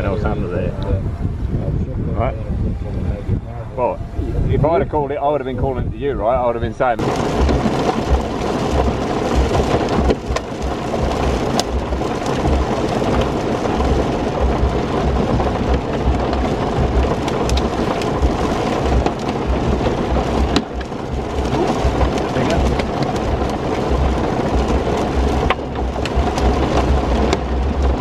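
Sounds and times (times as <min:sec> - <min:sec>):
deep rumble: 0:00.0 - 0:28.0
heavy rain: 0:02.7 - 0:28.0
drops ticking: 0:07.0 - 0:28.0.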